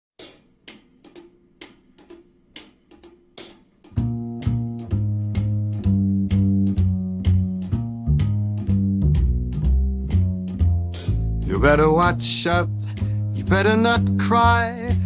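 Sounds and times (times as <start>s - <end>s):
drum and cymbal hits: 0.2s - 15.0s
bass and electric guitar chords: 4.0s - 15.0s.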